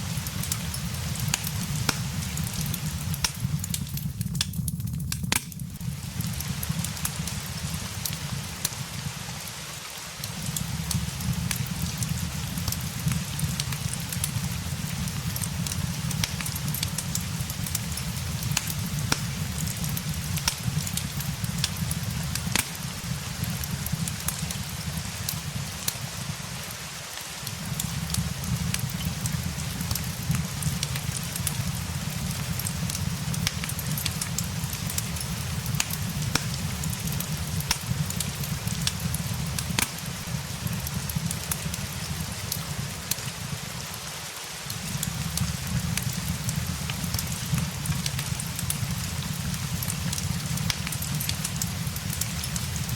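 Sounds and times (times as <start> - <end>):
fire crackling and popping: 0.0 - 52.9
steady rain hiss: 0.0 - 52.9.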